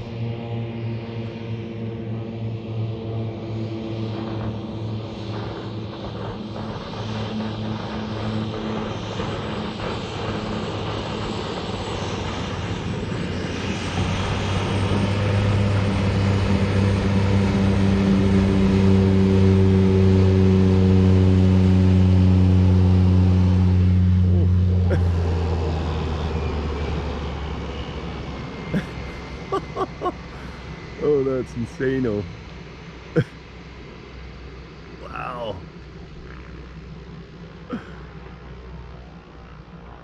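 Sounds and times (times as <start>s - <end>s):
engine droning: 0.0s - 40.0s.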